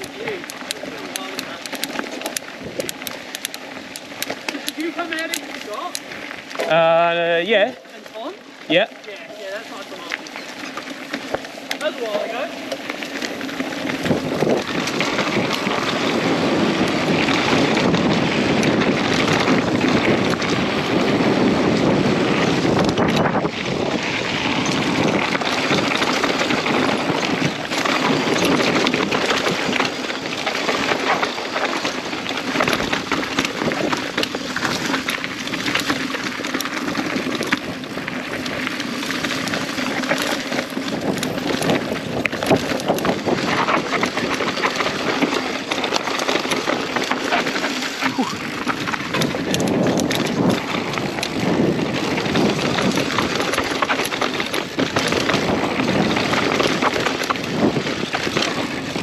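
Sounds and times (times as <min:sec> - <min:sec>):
bike clattering: 0:00.0 - 0:59.0
bike tyres on dirt: 0:00.0 - 0:59.0
wind on microphone: 0:13.0 - 0:59.0.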